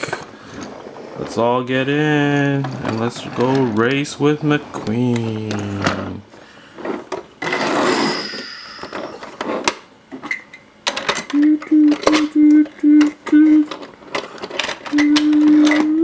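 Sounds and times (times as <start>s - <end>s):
toys clicking and rattling: 2.2s - 6.1s, 6.8s - 16.0s
long held tone: 7.9s - 9.4s, 11.3s - 13.9s, 14.8s - 16.0s.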